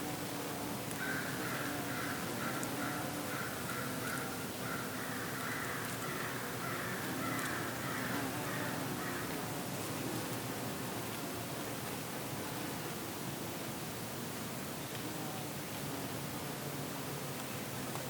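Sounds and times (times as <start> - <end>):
crows cawing: 1.0 - 9.3.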